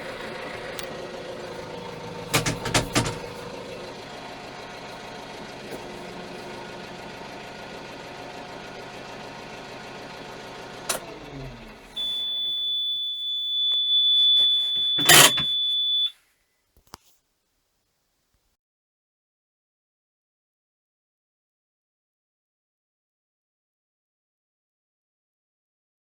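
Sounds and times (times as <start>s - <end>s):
diesel tractor engine idling: 0.0s - 12.8s
high-pitched warning beep: 12.0s - 16.1s.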